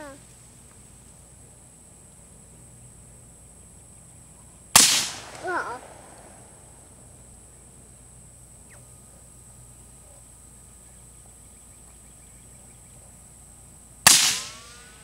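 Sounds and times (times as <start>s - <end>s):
suppressed rifle shot: 4.8s - 6.8s, 14.0s - 15.0s.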